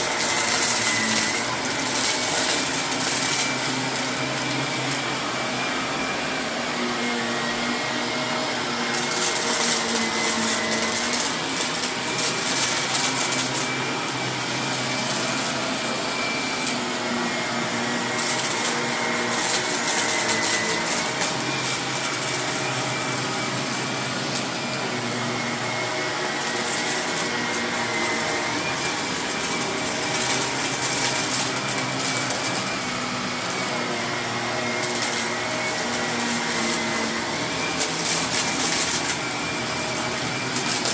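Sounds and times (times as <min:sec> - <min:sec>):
debris crackling in vacuum: 0:00.0 - 0:05.2, 0:08.9 - 0:25.2
vacuum cleaner running: 0:00.0 - 0:40.9.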